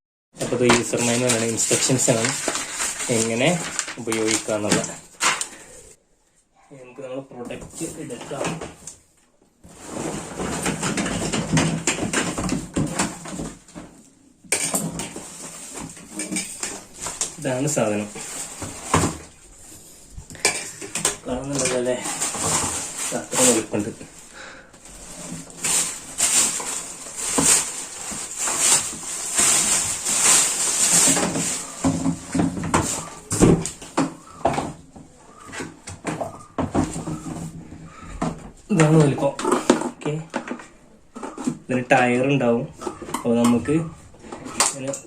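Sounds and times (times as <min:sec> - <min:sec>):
cardboard and plastic rustling: 0:00.4 - 0:05.8, 0:07.5 - 0:44.9.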